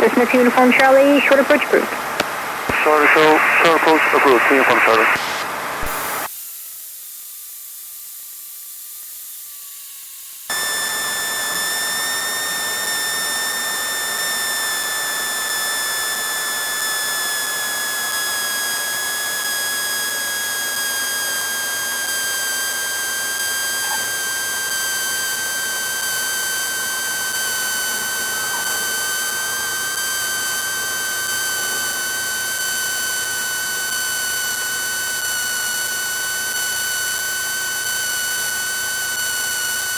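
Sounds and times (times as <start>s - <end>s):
aircraft cockpit hiss: 0.0s - 6.3s
high whine falling in pitch: 0.0s - 6.3s, 10.5s - 39.9s.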